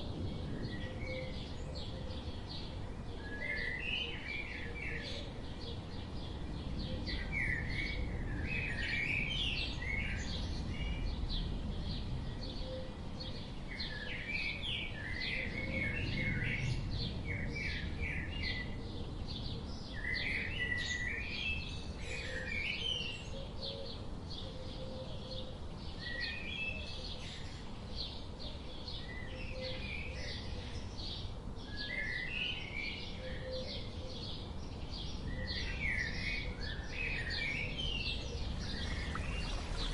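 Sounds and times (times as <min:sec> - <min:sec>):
small birds chirping: 0:00.0 - 0:39.9
low background rumble: 0:37.8 - 0:39.9.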